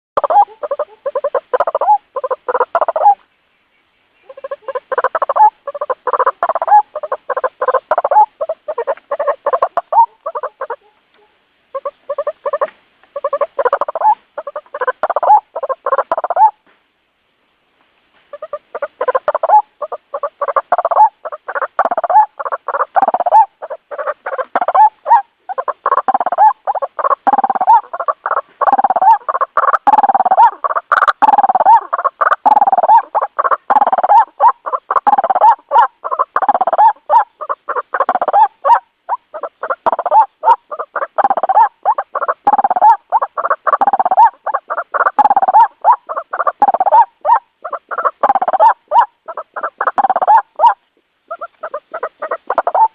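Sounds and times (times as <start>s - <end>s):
bird calling repeatedly: 0.2s - 16.7s, 18.3s - 52.9s.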